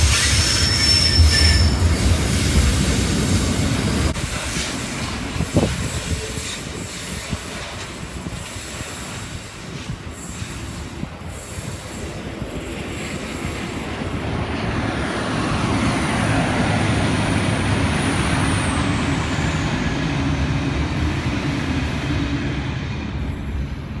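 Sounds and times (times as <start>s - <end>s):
freight train wagons rumbling: 0.0s - 24.0s
faint high squeal: 0.1s - 1.8s.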